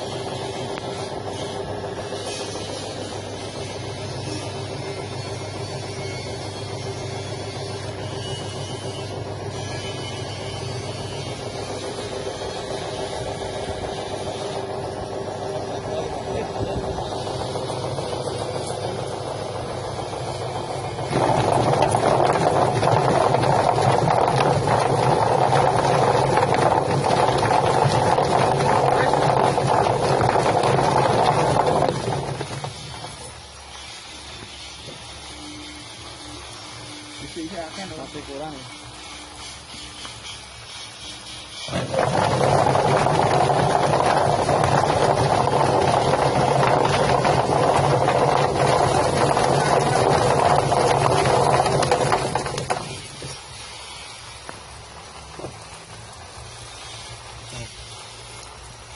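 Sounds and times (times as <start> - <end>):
feather plucker machine running: 0.0 - 54.3
feather plucking machine rattling: 8.8 - 33.6.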